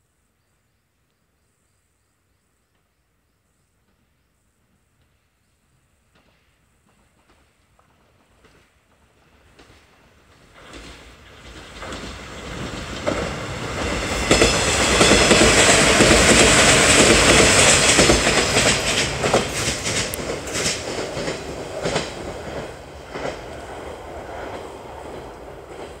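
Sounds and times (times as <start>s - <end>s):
electric train passing: 6.1s - 26.0s
wheels clacking over rail joints: 6.1s - 26.0s.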